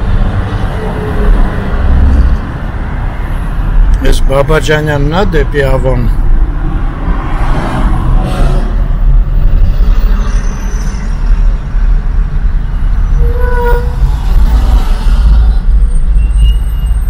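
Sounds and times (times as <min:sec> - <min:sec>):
road vehicle rumble: 0:00.0 - 0:17.0
horn toot: 0:13.2 - 0:14.1.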